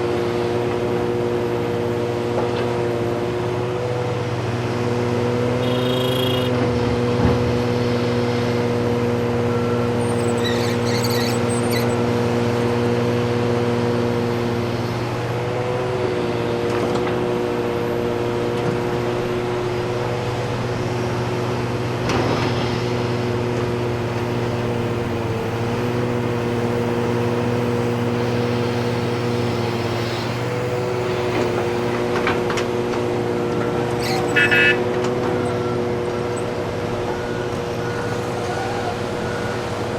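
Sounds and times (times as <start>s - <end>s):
heavy diesel engines running: 0.0s - 39.9s
short high-pitched tones: 5.6s - 6.6s.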